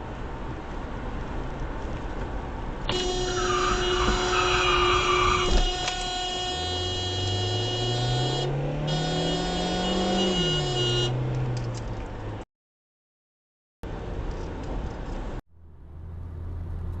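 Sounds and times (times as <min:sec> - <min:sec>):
road noise: 0:00.0 - 0:12.5, 0:13.8 - 0:17.0
vehicle horn blasts: 0:02.9 - 0:11.2
engine revving up: 0:07.3 - 0:11.6.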